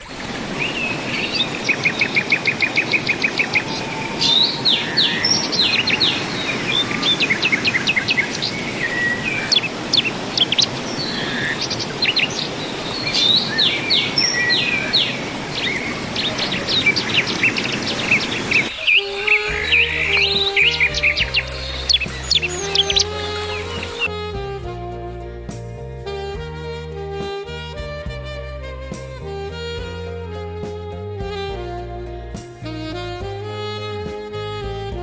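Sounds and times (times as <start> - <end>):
steady rushing noise: 0.0 - 18.7
birds chirping and calling: 0.0 - 24.1.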